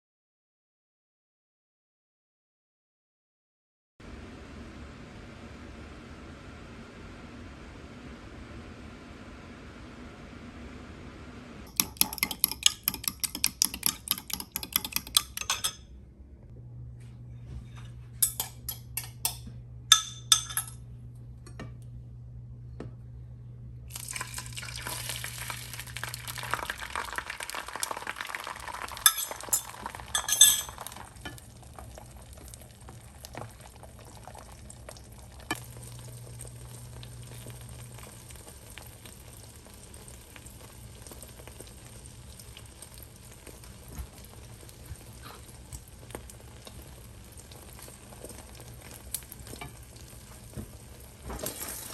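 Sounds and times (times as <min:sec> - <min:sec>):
utensils clinking against dishes: 0:11.7 - 0:15.9, 0:17.6 - 0:20.8, 0:29.0 - 0:31.4
food sizzling in a pan: 0:23.9 - 0:51.9.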